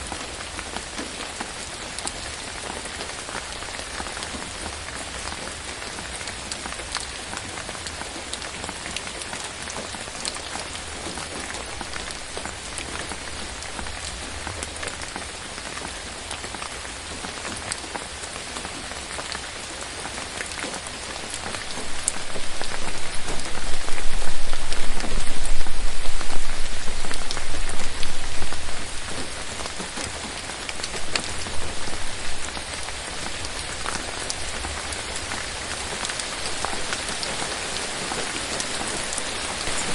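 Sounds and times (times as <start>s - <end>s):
rain on foliage: 0.0s - 39.9s
raindrops ticking: 0.0s - 39.9s
deep low rumble: 22.0s - 29.4s.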